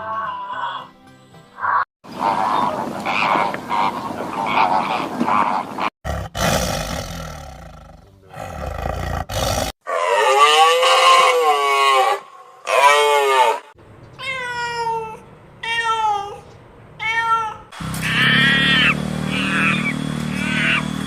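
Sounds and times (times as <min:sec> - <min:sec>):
animal growls and roars: 0:01.6 - 0:13.8
pitched animal call: 0:17.3 - 0:21.0.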